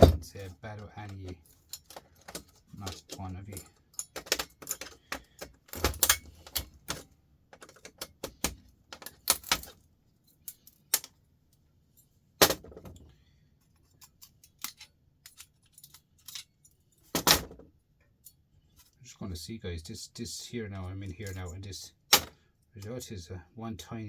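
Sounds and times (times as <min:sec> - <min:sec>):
hand tools clinking on metal: 0:00.0 - 0:07.0.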